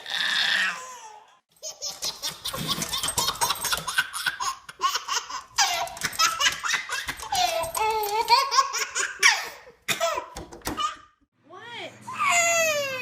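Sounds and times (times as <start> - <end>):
baby laughing: 0.8 - 11.1.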